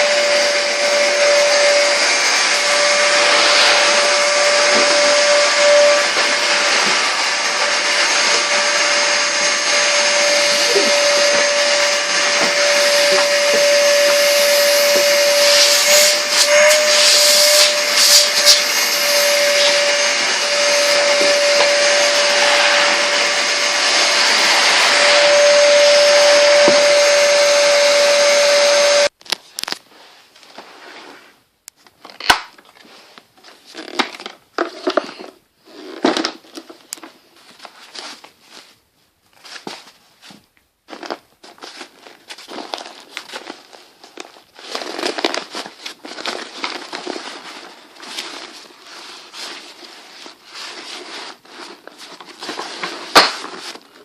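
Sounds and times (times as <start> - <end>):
vacuum cleaner running: 0.0 - 29.1.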